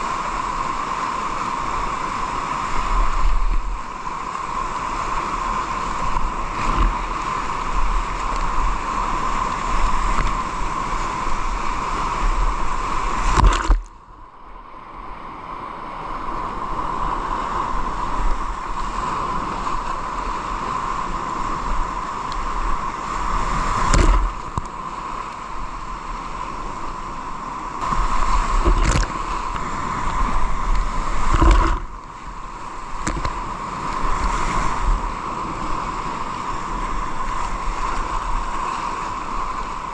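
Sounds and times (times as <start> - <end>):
water rushing around kayak: 0.0 - 39.9
sharp knocks or splashes: 13.3 - 13.9, 23.8 - 24.6, 27.8 - 29.6, 31.2 - 31.9
wind rumble on microphone: 14.7 - 39.9.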